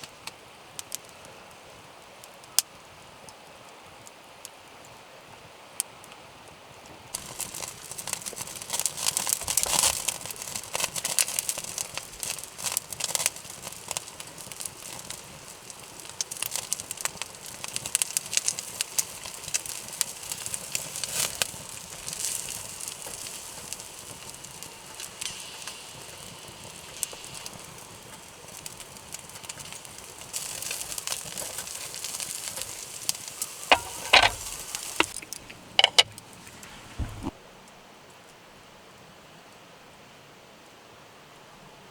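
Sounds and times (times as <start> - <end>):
campfire crackling and popping: 7.1 - 37.4.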